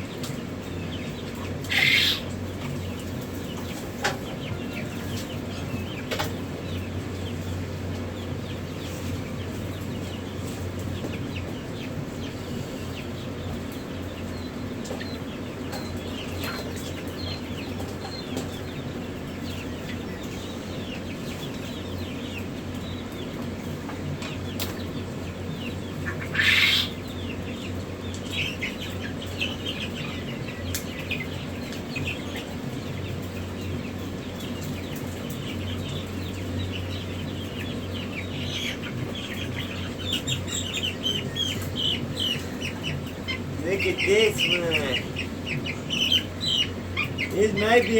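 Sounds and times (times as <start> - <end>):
chicks peeping: 0.0 - 47.9.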